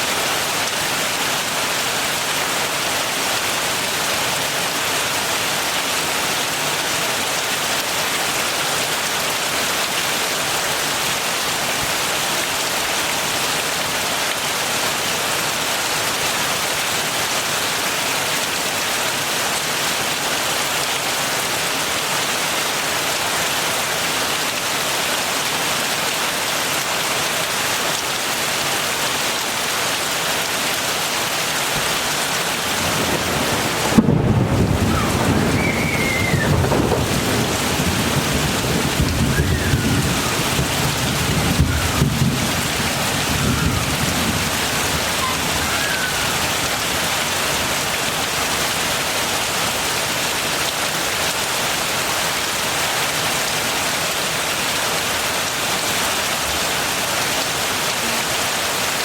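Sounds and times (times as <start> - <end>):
heavy rain: 0.0 - 59.0
thunder rumbling: 32.6 - 47.1.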